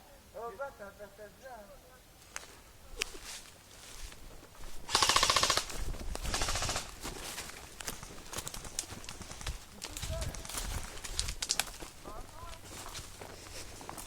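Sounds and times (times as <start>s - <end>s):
airsoft gun firing bursts: 4.9s - 7.0s.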